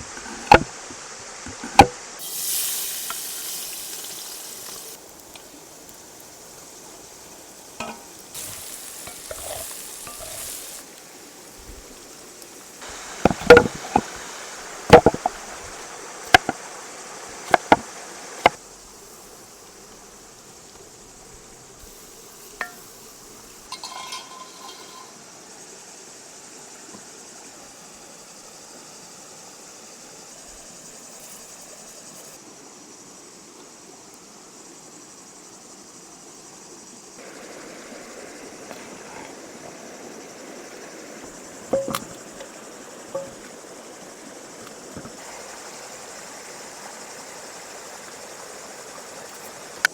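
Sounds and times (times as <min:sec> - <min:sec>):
insects buzzing: 0:00.0 - 0:49.9
cooking utensils clinking: 0:07.8 - 0:10.8, 0:12.8 - 0:14.3, 0:23.7 - 0:25.2, 0:41.7 - 0:42.2, 0:43.2 - 0:43.5.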